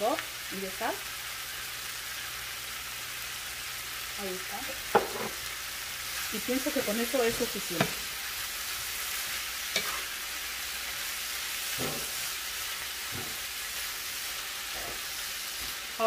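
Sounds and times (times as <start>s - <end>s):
food sizzling in a skillet: 0.0s - 16.0s
wooden spatula scraping: 9.7s - 10.2s.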